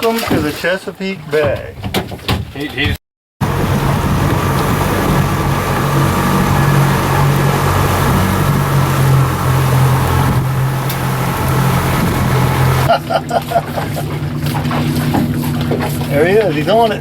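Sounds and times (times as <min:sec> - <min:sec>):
motorboat engine running: 0:03.4 - 0:17.0.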